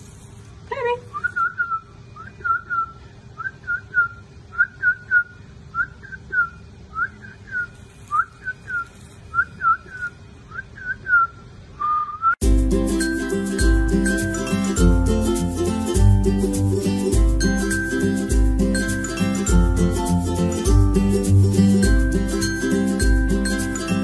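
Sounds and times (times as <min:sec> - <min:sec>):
person whistling short chirps: 0:01.1 - 0:12.4.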